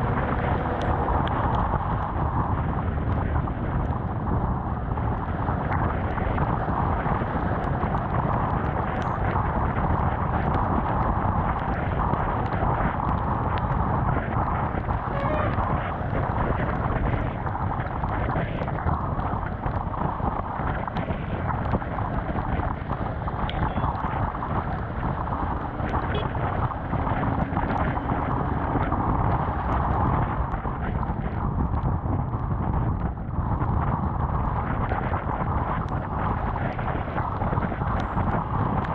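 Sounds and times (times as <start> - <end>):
wind and road noise: 0.0 - 38.9
motorcycle engine running: 22.9 - 30.4.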